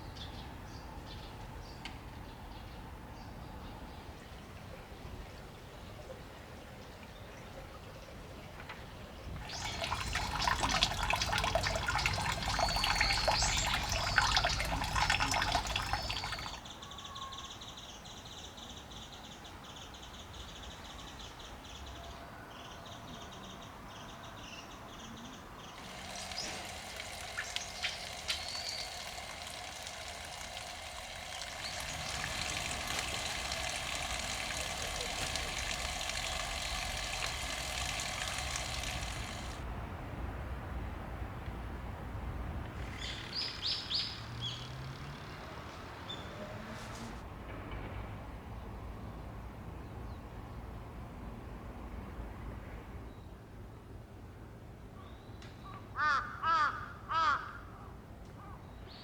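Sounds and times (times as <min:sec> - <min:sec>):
spring water trickling: 0:09.2 - 0:16.9, 0:25.2 - 0:39.7, 0:42.6 - 0:47.2
birds chirping: 0:09.2 - 0:39.6, 0:42.6 - 0:47.2.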